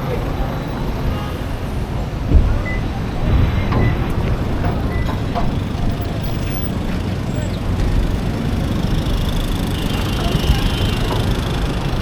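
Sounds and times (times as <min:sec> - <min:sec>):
low city rumble: 0:00.0 - 0:12.0
thump: 0:02.3 - 0:05.6.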